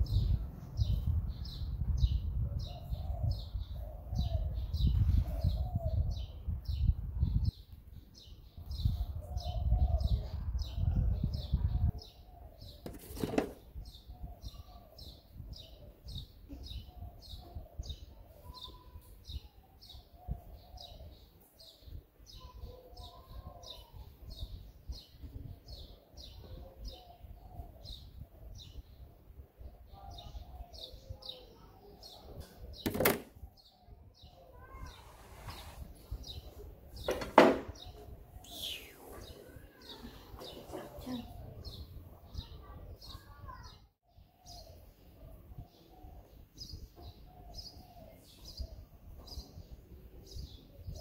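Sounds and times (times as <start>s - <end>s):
bird chirping: 29.8s - 51.0s
sharp knocks: 32.8s - 33.3s, 37.1s - 37.8s.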